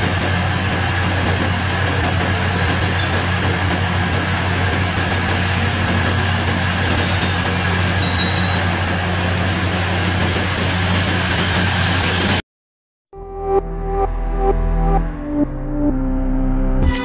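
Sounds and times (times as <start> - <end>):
high-pitched wheel squeals: 0.0 - 8.8
electric train rumble and hum: 0.0 - 12.4.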